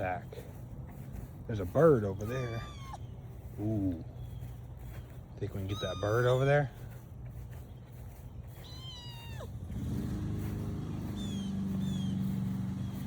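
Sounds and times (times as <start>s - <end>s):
high falling bird chirps: 1.8s - 9.5s, 10.9s - 13.0s
kitten meowing: 2.2s - 3.1s, 5.6s - 6.5s, 8.6s - 9.5s
low engine hum: 6.7s - 13.0s.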